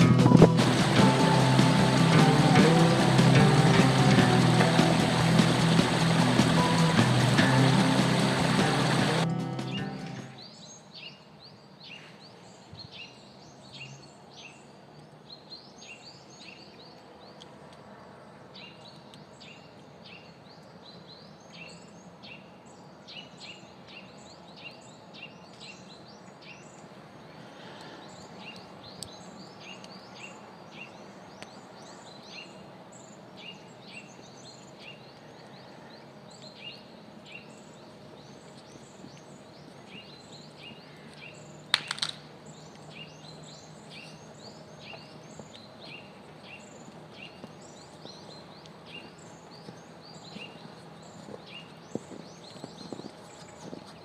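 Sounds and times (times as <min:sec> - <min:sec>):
faint outdoor hiss: 0:00.0 - 0:54.0
small birds chirping: 0:00.4 - 0:54.0.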